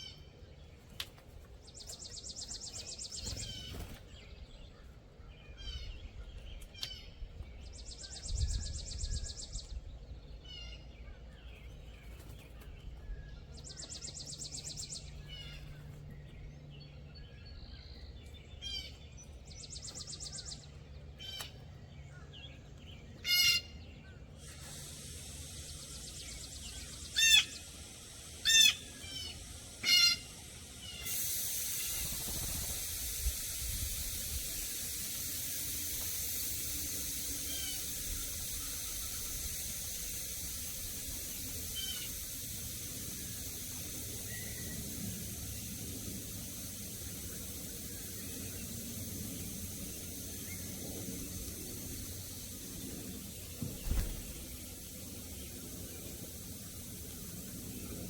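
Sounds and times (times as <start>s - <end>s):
loud sharp bird calls: 0.0s - 58.0s
high buzzy bird trill: 1.8s - 4.0s, 23.2s - 58.0s
steady hiss: 13.2s - 16.0s, 24.1s - 58.0s
short bird chirps: 23.3s - 58.0s.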